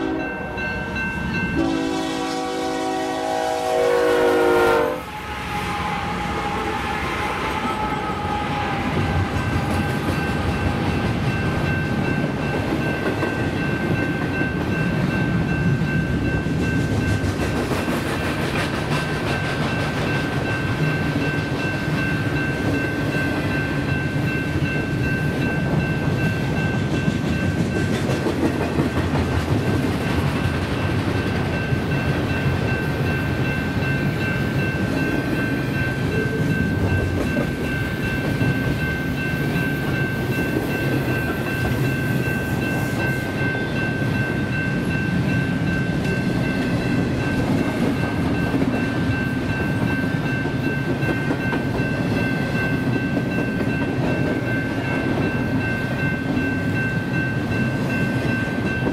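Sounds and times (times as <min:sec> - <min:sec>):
train horn: 0:00.0 - 0:00.6, 0:01.6 - 0:11.3
train wheels rumbling and clacking: 0:05.2 - 0:58.9
high ringing tone: 0:31.6 - 0:47.4.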